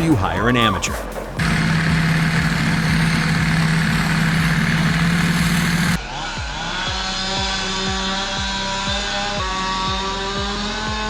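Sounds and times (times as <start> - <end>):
chainsaw at full throttle: 1.4 - 6.0, 6.8 - 11.0
engine running steadily: 1.4 - 6.0.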